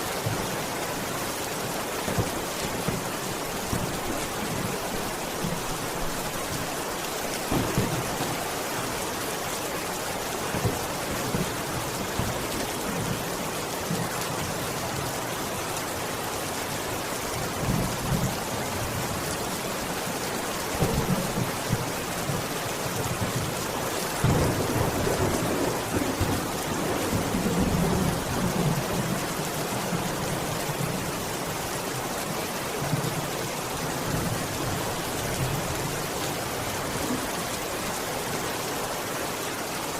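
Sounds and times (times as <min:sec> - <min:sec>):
rain hissing and pattering: 0:00.0 - 0:39.9
thunder rumbling: 0:07.4 - 0:08.6, 0:24.2 - 0:29.0.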